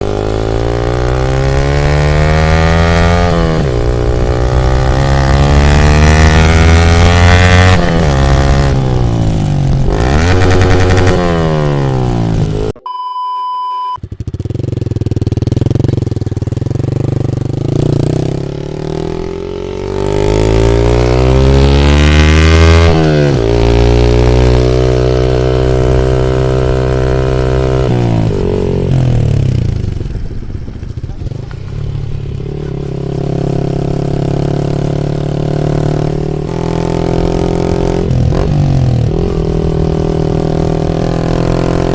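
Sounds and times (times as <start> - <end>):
motorcycle engine accelerating: 0.0 - 12.8, 14.0 - 41.9
short electronic beep: 12.8 - 14.0.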